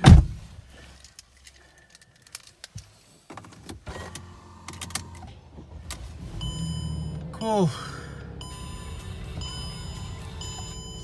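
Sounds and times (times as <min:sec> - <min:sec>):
low steady car hum: 0:03.8 - 0:11.0.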